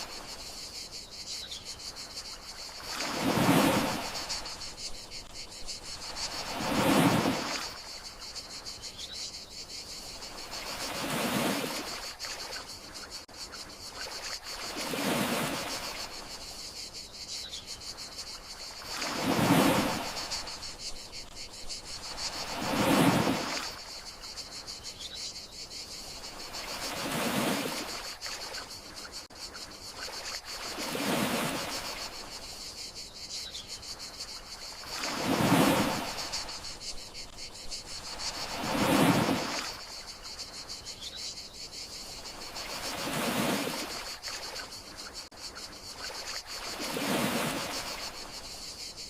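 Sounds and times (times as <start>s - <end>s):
crickets chirring: 0.0s - 49.0s
sea waves washing ashore: 2.0s - 8.6s, 10.1s - 13.3s, 13.9s - 16.5s, 18.3s - 24.4s, 26.2s - 28.9s, 30.0s - 32.5s, 34.3s - 40.5s, 42.1s - 44.9s, 46.0s - 48.7s.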